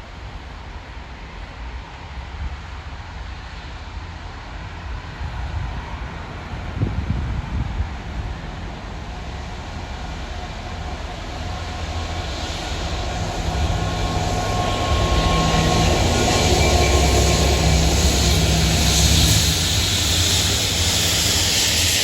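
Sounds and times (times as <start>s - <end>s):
diesel locomotive engine humming: 0.2s - 22.0s
hiss: 16.5s - 22.0s.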